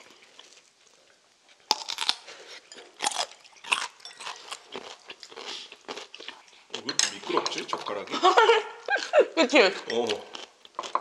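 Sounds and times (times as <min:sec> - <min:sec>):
crunchy radish chewing: 0:00.0 - 0:06.9, 0:09.9 - 0:11.0.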